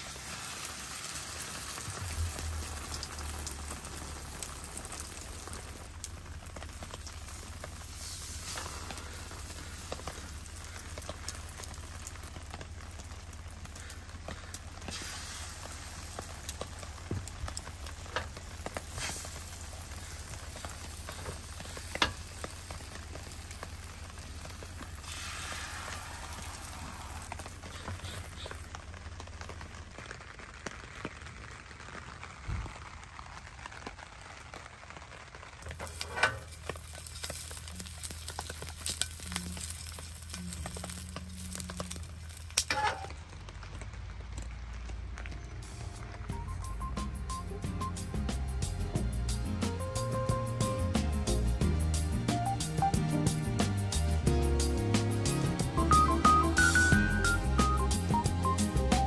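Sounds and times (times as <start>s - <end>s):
bread sizzling in a pan: 0.0s - 44.0s.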